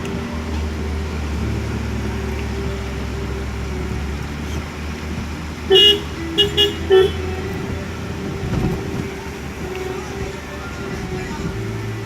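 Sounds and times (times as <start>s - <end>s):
vehicle running hum: 0.0s - 12.0s
vehicle horn beeps: 5.7s - 11.7s.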